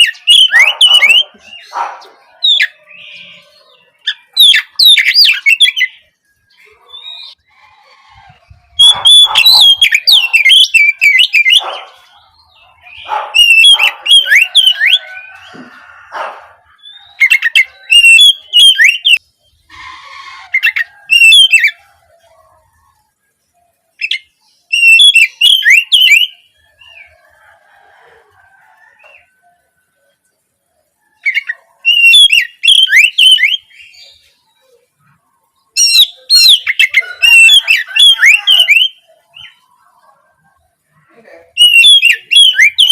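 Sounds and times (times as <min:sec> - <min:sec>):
bird singing whistled notes: 0:00.0 - 0:06.1, 0:08.7 - 0:15.5, 0:16.8 - 0:19.2, 0:20.5 - 0:21.9, 0:24.0 - 0:27.2, 0:31.2 - 0:34.3, 0:35.8 - 0:39.6, 0:41.6 - 0:42.9.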